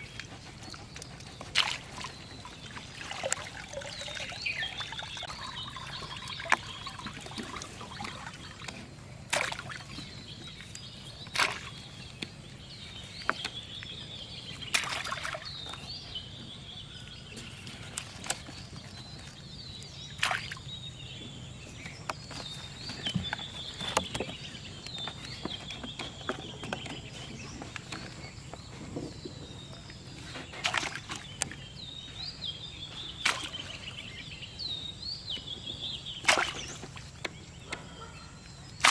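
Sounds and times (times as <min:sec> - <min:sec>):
birds chirping: 0:00.0 - 0:38.9
sharp knocks and splashes: 0:01.4 - 0:12.1, 0:14.6 - 0:15.8, 0:20.1 - 0:20.8, 0:30.3 - 0:31.7, 0:33.2 - 0:34.0, 0:36.2 - 0:37.5.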